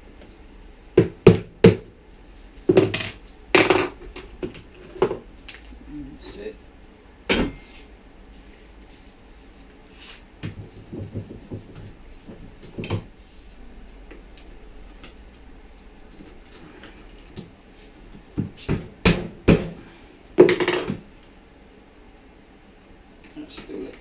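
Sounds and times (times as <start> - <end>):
metal tools clinking and knocking: 4.7 - 5.8.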